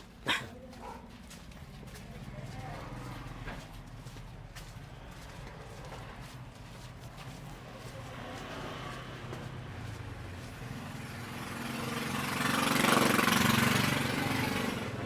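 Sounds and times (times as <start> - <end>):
motorbike engine passing by: 8.0 - 15.0.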